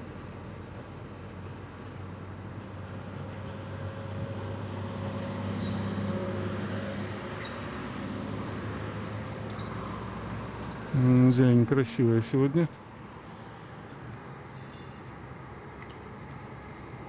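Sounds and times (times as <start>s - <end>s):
road noise: 0.1s - 17.0s.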